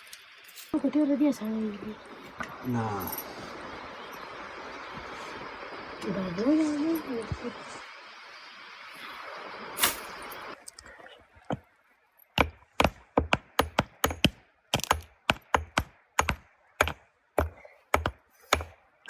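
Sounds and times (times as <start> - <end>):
sharp knocks on wood: 12.4 - 18.8.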